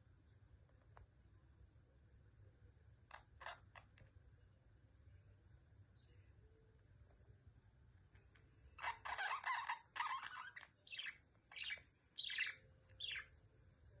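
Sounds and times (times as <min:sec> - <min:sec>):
budgerigar chirping: 0:08.8 - 0:13.3.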